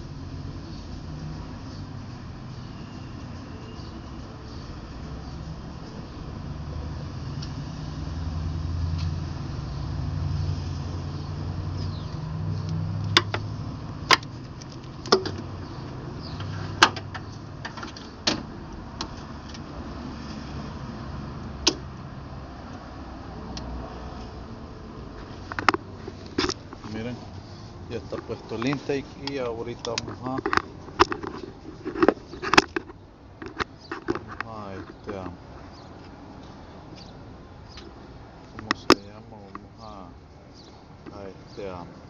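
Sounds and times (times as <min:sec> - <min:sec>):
low vehicle rumble: 0:00.0 - 0:42.0
tools clicking on engine: 0:28.1 - 0:35.3.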